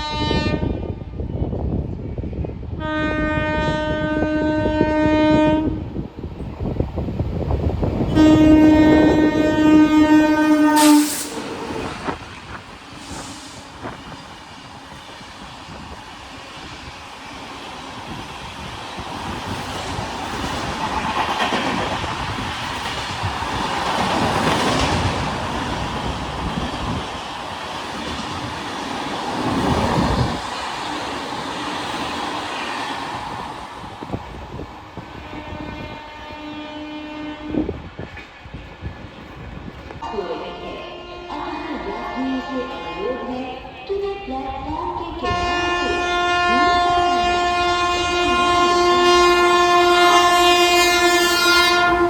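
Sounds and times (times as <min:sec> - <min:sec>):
locomotive horn blast: 0:00.0 - 0:01.0, 0:02.8 - 0:05.8, 0:08.1 - 0:12.1, 0:35.3 - 0:37.7, 0:40.0 - 0:43.2, 0:45.2 - 0:52.0
train wheels rattling and clattering: 0:10.8 - 0:35.8.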